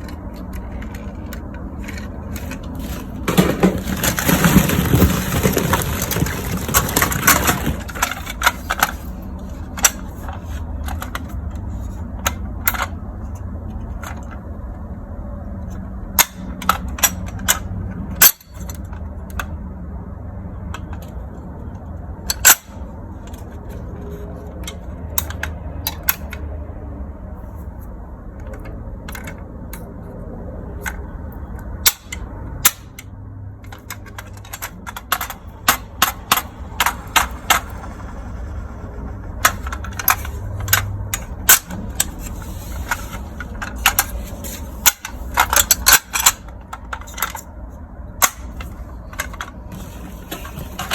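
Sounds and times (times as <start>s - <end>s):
plastic toy cars clattering: 0.0s - 15.0s, 15.6s - 19.7s, 20.5s - 26.5s, 27.6s - 50.9s
steady low hum: 34.9s - 45.8s.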